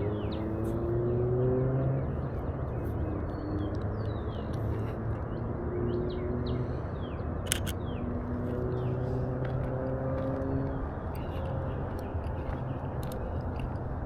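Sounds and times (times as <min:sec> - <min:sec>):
faint engine hums: 0:00.0 - 0:14.0
low outdoor rumble: 0:00.0 - 0:14.0
small birds chirping: 0:00.0 - 0:14.0
sharp double click: 0:07.4 - 0:07.8.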